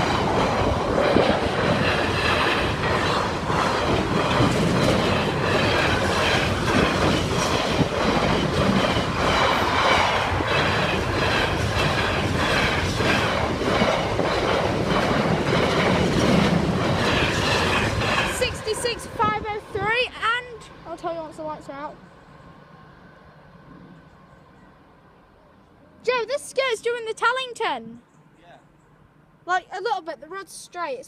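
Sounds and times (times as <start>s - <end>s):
train wheels clattering: 0.0s - 19.6s.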